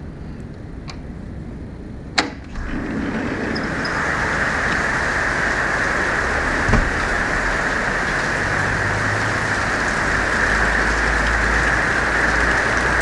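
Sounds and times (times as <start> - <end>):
heavy rain falling: 2.5 - 13.0
low bump: 6.3 - 7.7.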